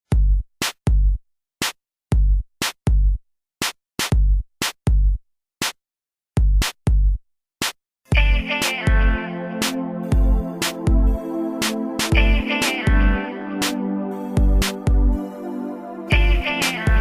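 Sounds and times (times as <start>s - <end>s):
drum machine beat: 0.0s - 5.8s, 6.4s - 15.2s, 16.1s - 17.0s
sustained synthesizer chord: 9.2s - 12.2s, 13.0s - 16.6s.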